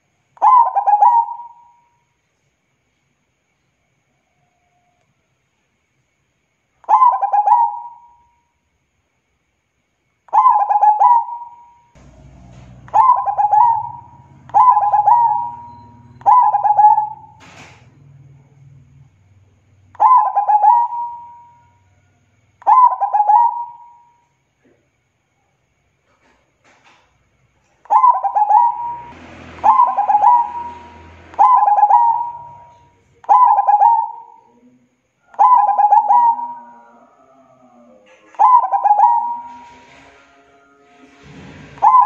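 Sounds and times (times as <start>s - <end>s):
dove cooing: 0.4s - 1.8s, 6.9s - 8.2s, 10.4s - 17.8s, 19.9s - 22.0s, 22.6s - 24.1s, 27.9s - 40.2s, 41.0s - 42.0s.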